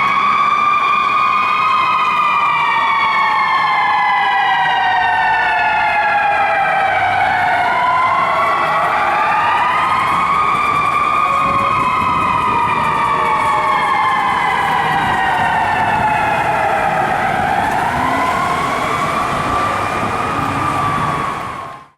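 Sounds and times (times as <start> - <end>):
fire truck siren wailing: 0.0 - 21.9
truck rumble on road: 7.1 - 21.9.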